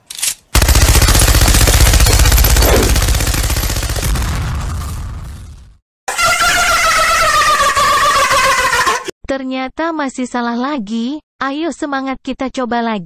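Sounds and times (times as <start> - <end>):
machine gun automatic fire: 0.6 - 4.2.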